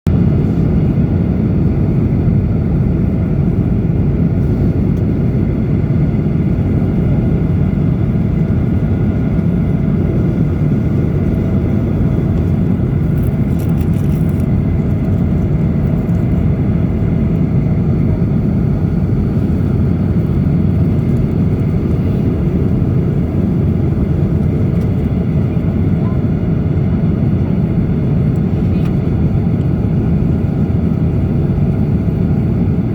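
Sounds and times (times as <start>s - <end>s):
airplane cabin rumble: 0.1s - 32.9s
faint crackle: 13.1s - 14.5s.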